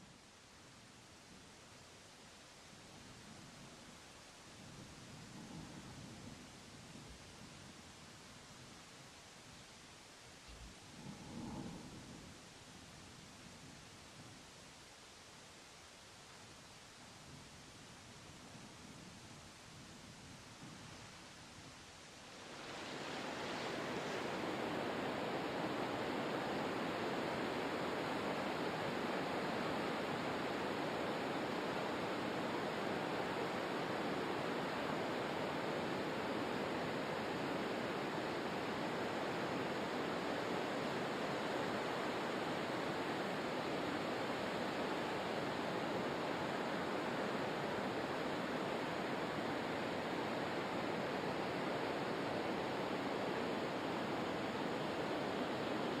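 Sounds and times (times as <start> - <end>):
rushing water: 22.3 - 56.0.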